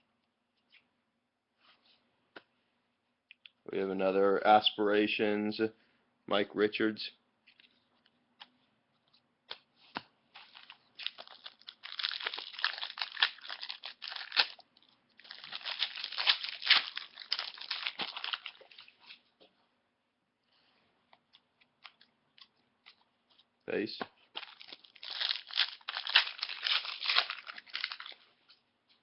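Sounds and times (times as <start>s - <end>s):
wrapper tearing and crinkling: 10.4s - 14.6s, 15.2s - 18.9s, 24.4s - 28.2s.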